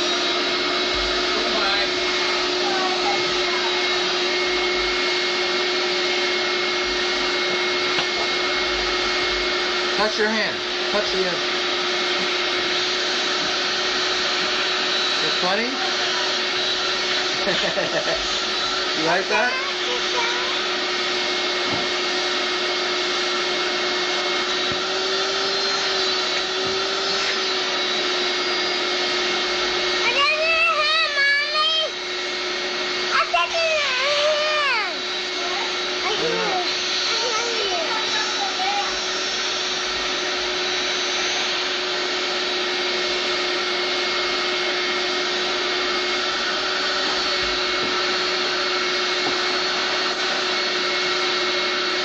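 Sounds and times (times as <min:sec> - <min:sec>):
vacuum cleaner running: 0:00.0 - 0:52.0
high-pitched voice: 0:02.6 - 0:04.0, 0:19.3 - 0:20.7, 0:30.0 - 0:32.0, 0:33.1 - 0:39.0.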